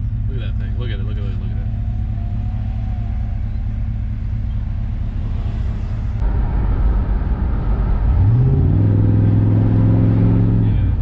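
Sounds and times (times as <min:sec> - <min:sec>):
car engine under heavy throttle: 0:00.0 - 0:11.0.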